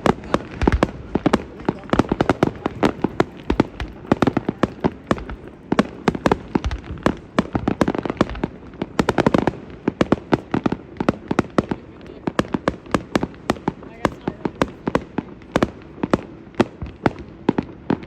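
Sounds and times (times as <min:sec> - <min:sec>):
deep fireworks booms: 0:00.0 - 0:18.0
fireworks bangs and crackles: 0:00.0 - 0:18.0.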